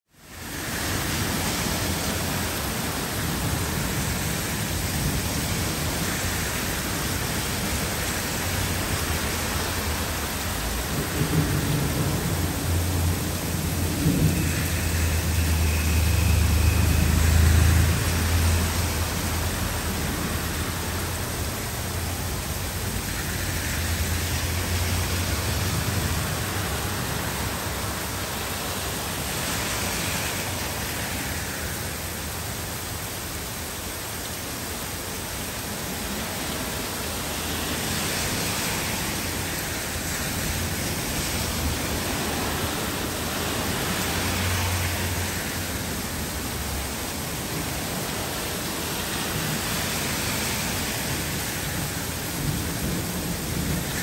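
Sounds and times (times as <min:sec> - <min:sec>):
heavy rain: 0:00.1 - 0:54.0
thunder rumbling: 0:08.8 - 0:19.2.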